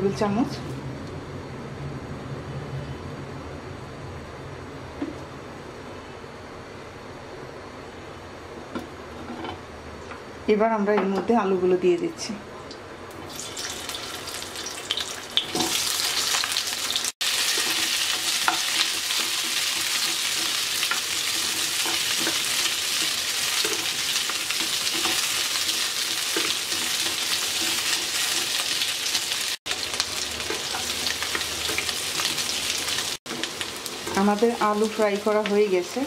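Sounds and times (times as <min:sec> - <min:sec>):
potatoes sizzling in oil: 0:13.2 - 0:36.0.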